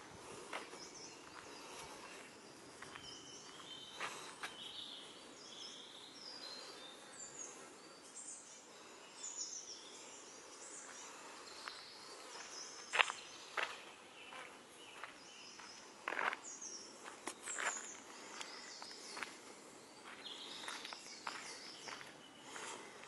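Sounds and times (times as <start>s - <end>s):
steady outdoor hiss: 0.0s - 23.0s
woodland birdsong: 0.0s - 23.0s.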